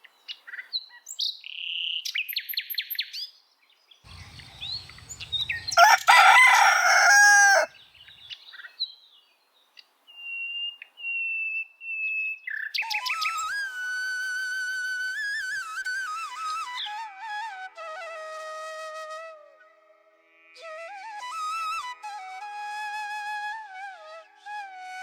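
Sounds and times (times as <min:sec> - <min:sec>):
small birds chirping: 0:03.8 - 0:09.9
rooster crowing: 0:04.1 - 0:07.8
flute tune: 0:12.9 - 0:25.0.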